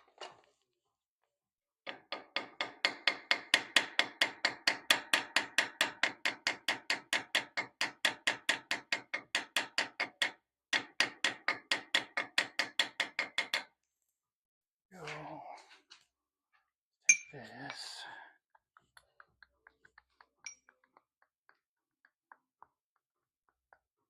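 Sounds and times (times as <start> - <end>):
small hammer tapping on metal: 1.9 - 13.7, 18.9 - 20.9.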